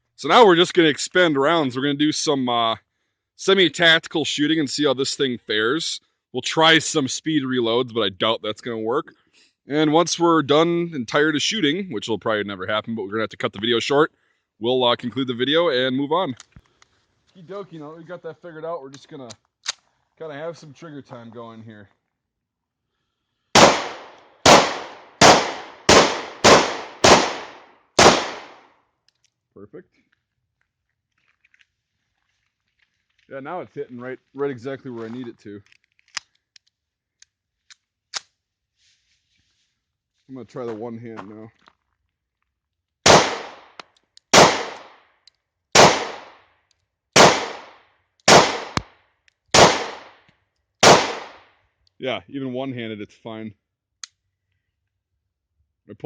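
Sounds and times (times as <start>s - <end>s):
pistol shots with echo: 23.6s - 28.6s, 43.1s - 45.0s, 45.8s - 46.4s, 47.2s - 48.9s, 49.5s - 50.2s, 50.8s - 51.4s.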